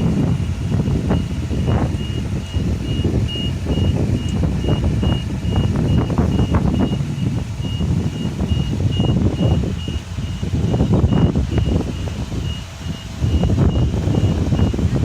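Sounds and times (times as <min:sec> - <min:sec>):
engine rumble: 0:00.0 - 0:15.0
truck warning beeper: 0:00.0 - 0:15.0.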